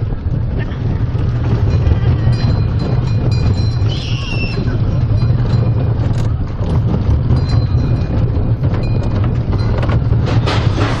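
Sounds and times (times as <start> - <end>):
train rumbling on track: 0.0 - 11.0
clicks and rattles: 4.7 - 11.0.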